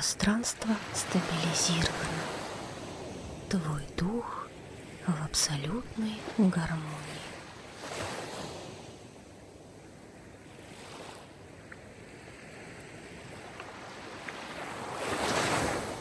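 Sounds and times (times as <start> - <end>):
sea waves washing in: 0.0 - 16.0.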